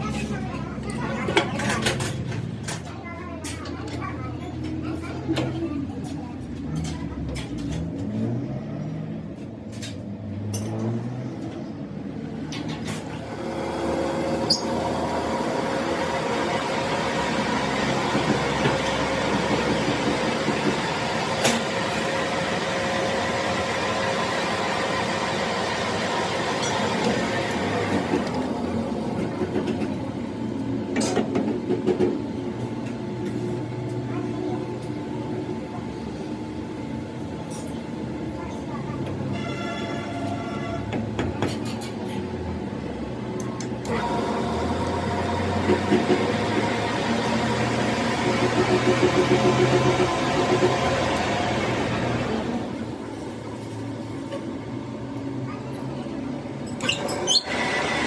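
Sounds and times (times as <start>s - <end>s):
machine tool whining and hissing: 12.9s - 29.6s, 56.7s - 58.0s.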